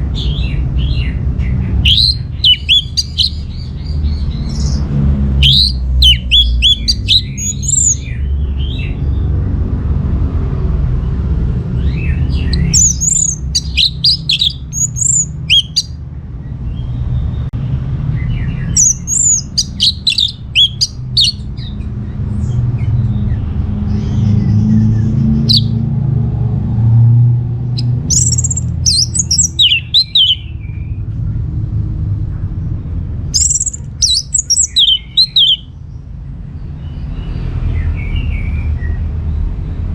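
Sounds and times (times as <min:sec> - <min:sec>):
thrush singing: 0:00.0 - 0:09.0, 0:11.8 - 0:16.0, 0:18.3 - 0:22.0, 0:24.2 - 0:26.4, 0:27.5 - 0:30.6, 0:33.4 - 0:35.8
low rumble: 0:00.0 - 0:35.1.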